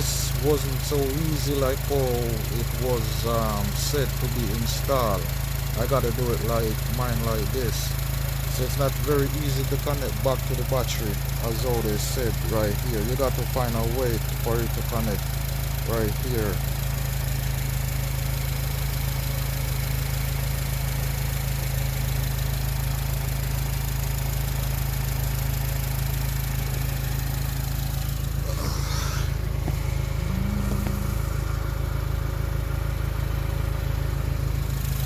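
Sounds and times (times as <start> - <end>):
car engine idling: 0.0 - 35.0
higher wavering sound: 28.4 - 31.8.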